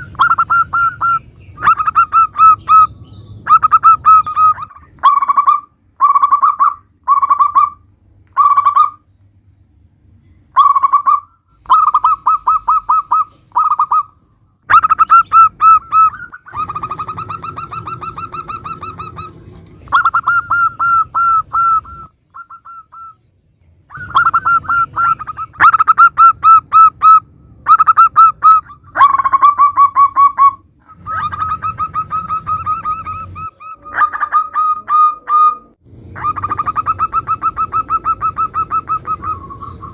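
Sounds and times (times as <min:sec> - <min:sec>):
doves cooing: 0:00.0 - 0:09.0, 0:10.6 - 0:23.2, 0:23.9 - 0:39.9.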